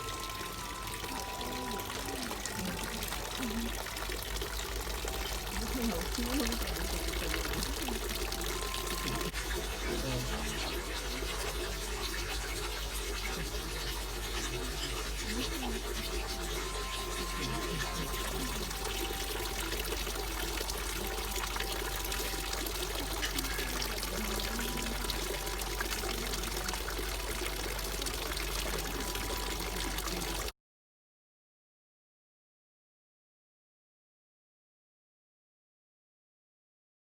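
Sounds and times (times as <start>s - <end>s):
water pouring into pool: 0.0s - 30.5s.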